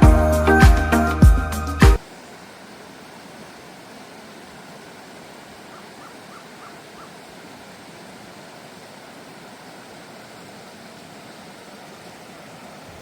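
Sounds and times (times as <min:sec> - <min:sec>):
outdoor background hiss: 0:00.0 - 0:13.0
faint bird calling: 0:05.5 - 0:07.4.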